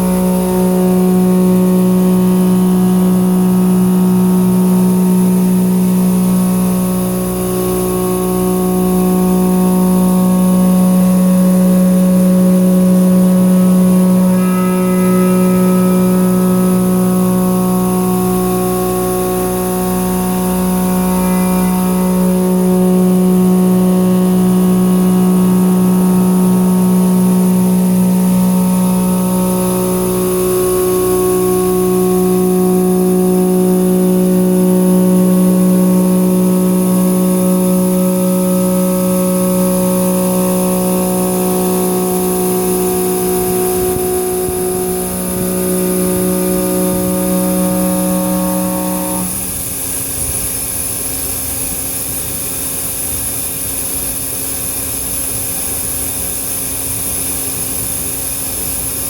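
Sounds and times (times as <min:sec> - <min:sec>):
milling cutter cutting steel hum: 0:00.0 - 0:50.0.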